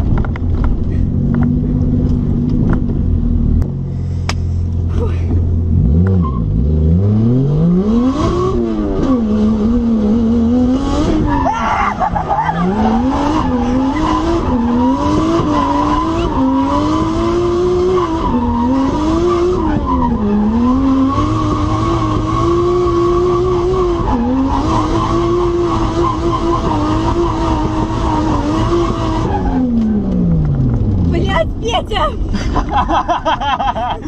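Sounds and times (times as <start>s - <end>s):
race car engine revving: 5.7s - 31.4s
tyres squealing and skidding: 11.1s - 16.7s.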